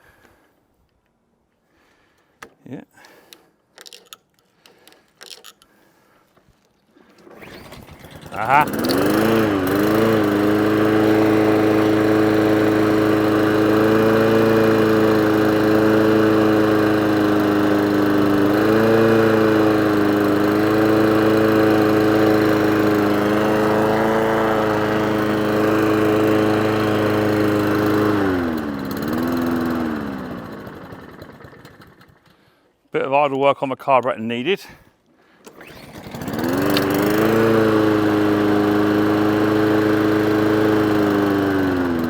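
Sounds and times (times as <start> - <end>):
lawnmower engine running: 6.5 - 32.6, 35.4 - 42.0.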